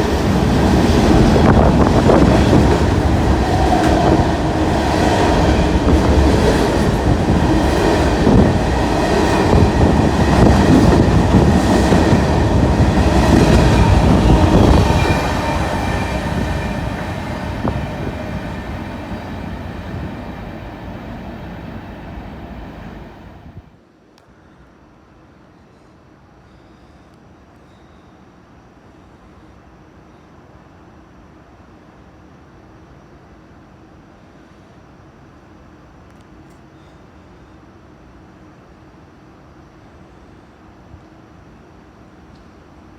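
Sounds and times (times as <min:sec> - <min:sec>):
train passing: 0:00.0 - 0:23.8.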